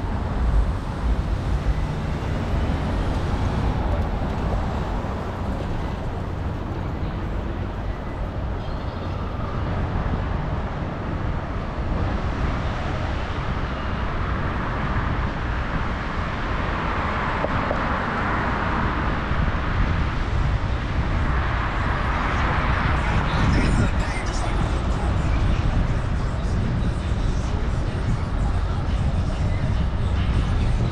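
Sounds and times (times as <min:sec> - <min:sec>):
rushing noise: 0:00.0 - 0:10.5
low wind rumble on microphone: 0:00.0 - 0:30.9
street traffic: 0:00.0 - 0:30.9.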